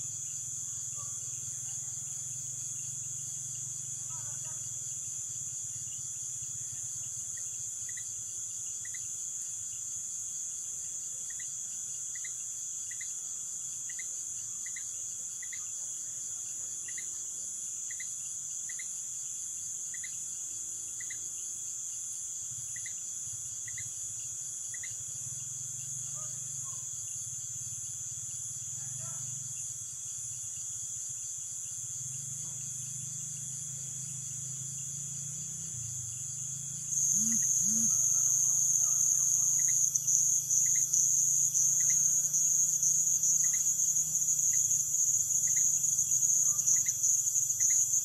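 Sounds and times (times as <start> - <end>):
steady lower insect tone: 0.0 - 48.0
high-pitched shrill of crickets: 5.3 - 8.2, 8.8 - 9.5, 11.2 - 13.2, 13.9 - 15.8, 16.9 - 17.2, 17.9 - 19.0, 19.9 - 20.4, 21.0 - 21.3, 22.7 - 48.0
short insect chirps: 7.3 - 9.9, 12.1 - 15.8, 19.9 - 20.4, 22.7 - 26.8, 31.6 - 48.0.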